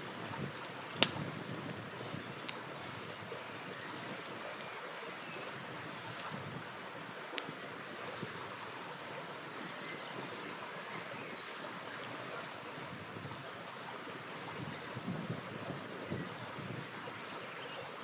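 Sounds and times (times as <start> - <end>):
campfire crackling: 0.0 - 14.4
river water flowing: 0.0 - 18.0
campfire pop: 0.4 - 3.0.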